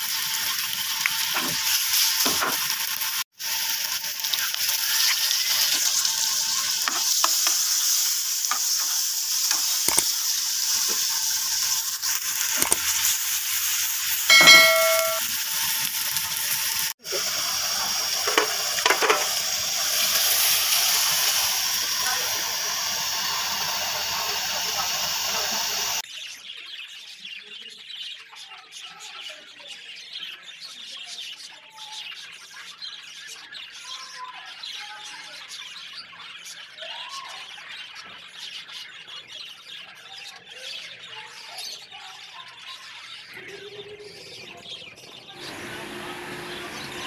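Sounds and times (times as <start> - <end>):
potatoes sizzling in oil: 0.0 - 26.0, 44.2 - 47.0.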